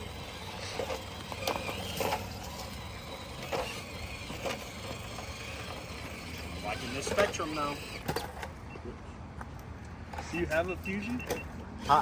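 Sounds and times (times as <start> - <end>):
high motor whine: 0.0 - 8.8.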